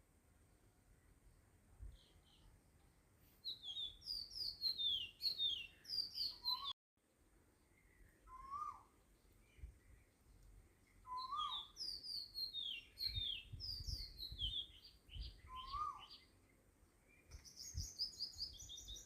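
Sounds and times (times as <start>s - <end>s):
birds chirping: 3.4s - 6.8s, 7.6s - 19.0s.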